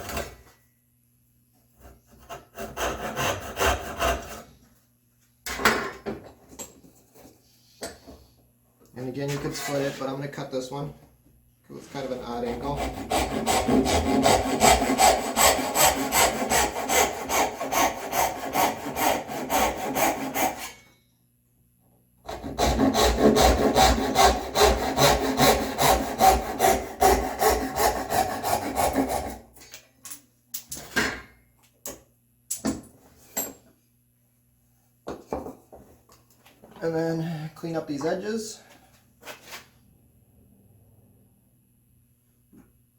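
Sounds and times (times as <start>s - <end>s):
hand saw cutting wood: 1.8s - 4.5s, 9.4s - 10.1s, 12.0s - 20.9s, 22.3s - 29.4s.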